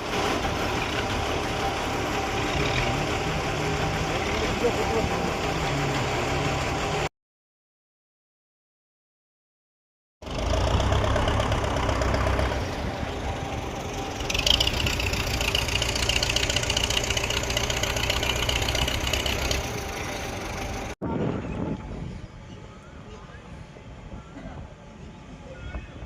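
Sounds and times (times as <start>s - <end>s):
tractor engine rumbling: 0.0s - 7.1s, 10.2s - 26.0s
higher rough noise: 10.2s - 21.7s.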